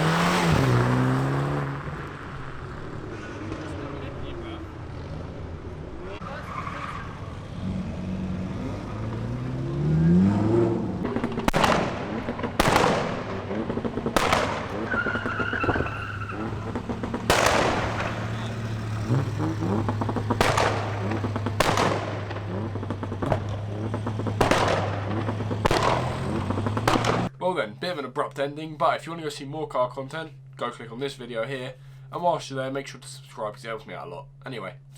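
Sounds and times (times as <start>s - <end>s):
car engine revving: 0.0s - 27.4s
exhaust bangs: 0.0s - 28.0s.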